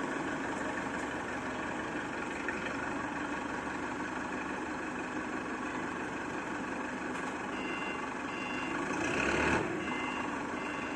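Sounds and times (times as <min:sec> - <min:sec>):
truck engine running: 0:00.0 - 0:09.0
reversing alarm beeping: 0:07.5 - 0:08.8, 0:09.8 - 0:10.9.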